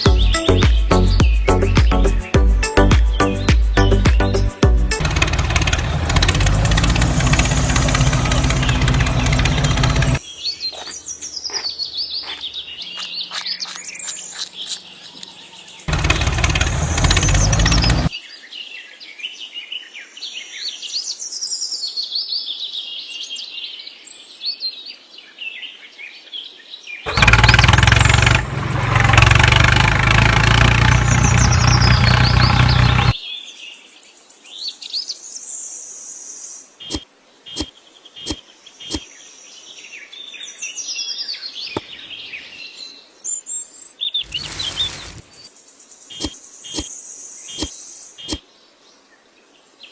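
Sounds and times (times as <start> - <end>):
birds chirping and singing: 0.0 - 18.2, 44.1 - 45.5.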